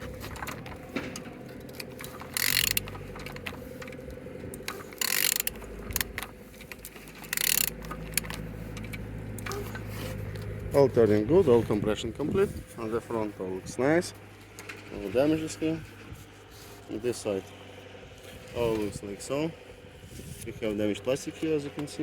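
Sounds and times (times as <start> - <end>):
ratchet wrench clicking: 1.6 - 3.6, 4.6 - 9.5.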